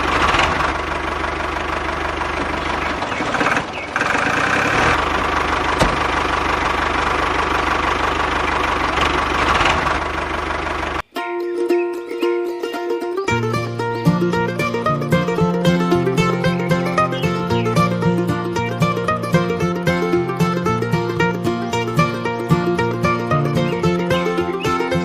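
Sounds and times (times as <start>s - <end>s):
small motor rattling hum: 0.0s - 11.0s
plucked-string music: 9.2s - 25.0s.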